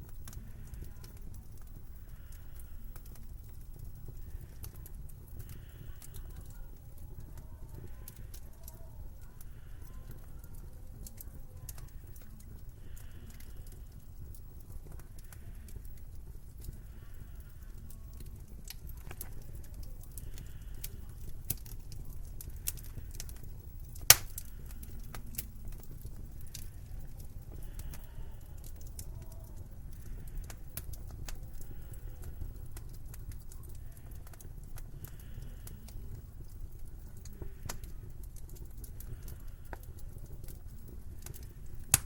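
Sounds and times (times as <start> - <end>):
fire popping: 0.0 - 42.0
wood fire crackling: 0.0 - 42.0.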